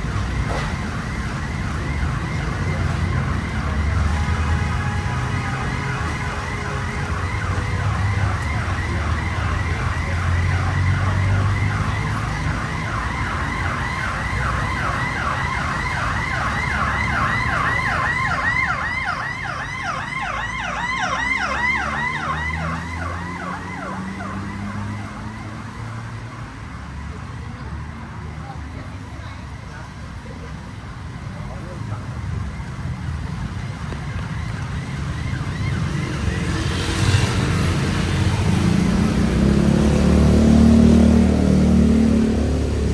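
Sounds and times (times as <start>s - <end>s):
siren yelping: 0.0s - 26.2s, 33.5s - 38.8s
low traffic rumble: 0.0s - 42.9s.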